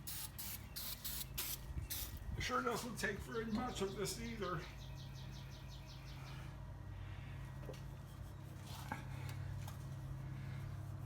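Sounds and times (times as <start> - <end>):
steady low hum: 0.0 - 11.0
cloth rubbing on car paint: 7.8 - 9.2.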